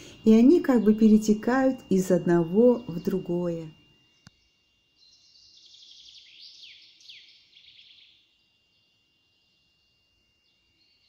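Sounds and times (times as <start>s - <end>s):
songbird singing a trill: 0.0s - 11.0s.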